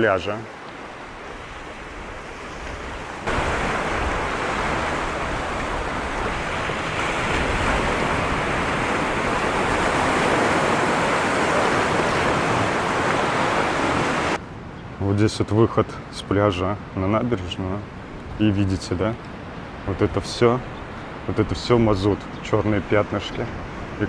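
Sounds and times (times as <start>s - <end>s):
sea surf washing onto shore: 0.0s - 14.4s.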